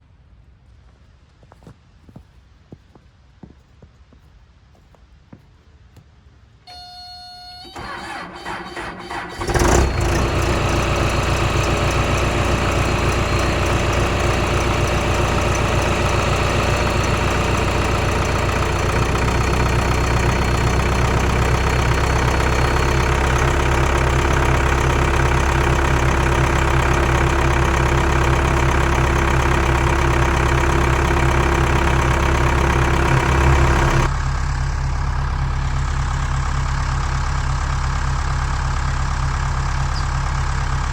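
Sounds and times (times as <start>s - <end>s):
short electronic beep: 6.7s - 8.2s
engine running: 6.7s - 40.9s
starter cranking: 7.8s - 34.1s.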